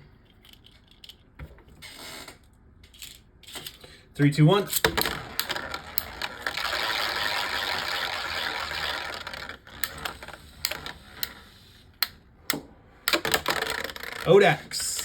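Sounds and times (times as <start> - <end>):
spinning tops clicking together: 4.7 - 11.4
spinning tops rattling and scraping: 4.7 - 11.8, 13.1 - 15.0.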